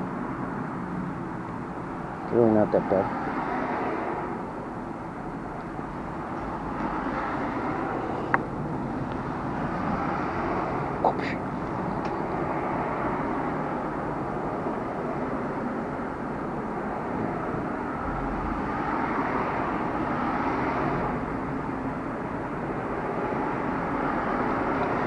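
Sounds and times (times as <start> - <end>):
road traffic noise: 0.0 - 25.0
vehicle passing: 1.9 - 25.0.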